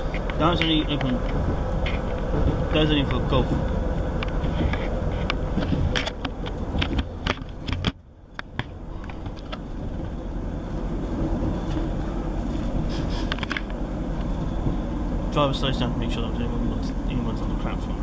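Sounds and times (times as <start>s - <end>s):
train interior rumble: 0.0s - 18.0s
clicks and rattles: 4.2s - 10.2s.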